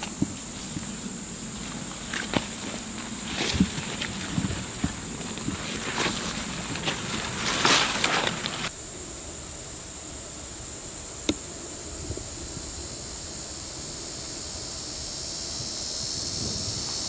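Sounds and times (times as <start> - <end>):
rustling of grass and brush: 0.0 - 8.7
high-pitched insect buzz: 0.0 - 17.0.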